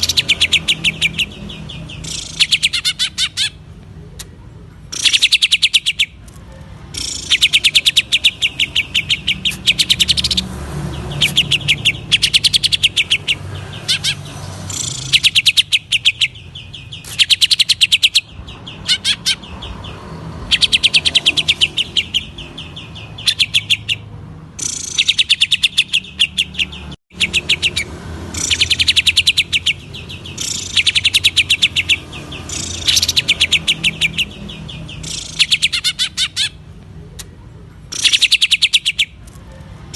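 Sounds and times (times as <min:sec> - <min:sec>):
bird singing rapid high notes: 0:00.0 - 0:03.8, 0:04.9 - 0:06.2, 0:06.8 - 0:36.8, 0:37.9 - 0:39.2.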